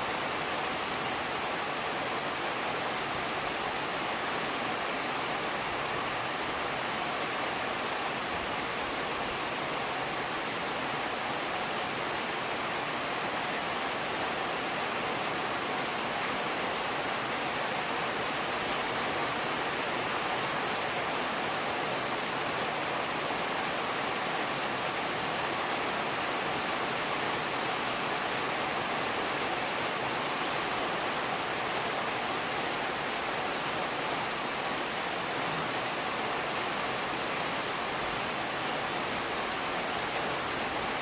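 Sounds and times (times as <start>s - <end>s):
steady rainfall: 0.0s - 41.0s.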